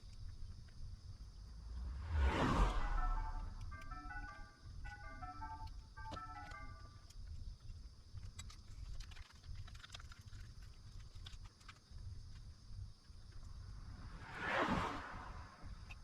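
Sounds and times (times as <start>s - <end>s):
low steady rumble: 0.1s - 7.0s.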